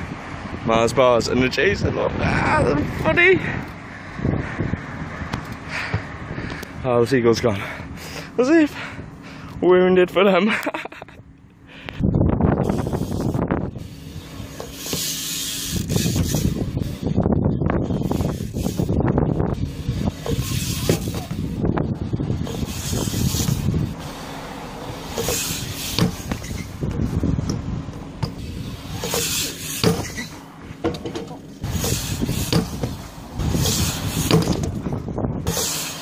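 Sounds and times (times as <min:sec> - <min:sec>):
bike tyres rolling on concrete: 0:12.5 - 0:36.0
scraping hiss: 0:12.6 - 0:17.0, 0:19.6 - 0:21.5, 0:22.4 - 0:26.8, 0:28.2 - 0:30.5, 0:31.1 - 0:34.7, 0:35.4 - 0:36.0.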